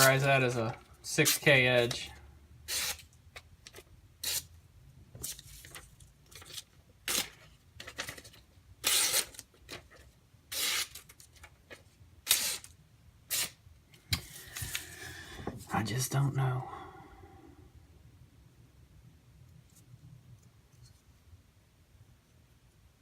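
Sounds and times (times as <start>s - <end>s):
knife scraping: 2.7s - 3.0s, 4.2s - 4.5s.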